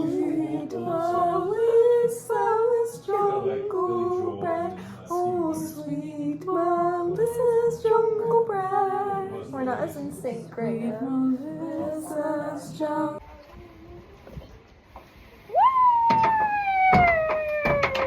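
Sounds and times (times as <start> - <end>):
woman singing a melody: 0.0 - 13.2.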